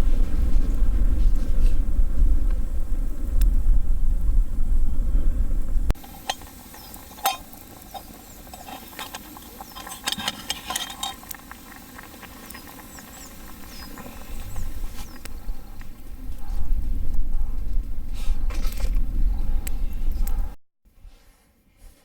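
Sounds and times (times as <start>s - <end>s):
low wind rumble: 0.0s - 20.6s
wood fire crackling and popping: 5.9s - 16.5s.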